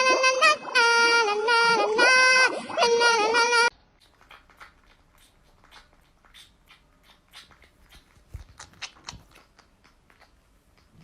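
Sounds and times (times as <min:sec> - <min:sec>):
pet chewing with crunching clicks: 0:04.0 - 0:11.0.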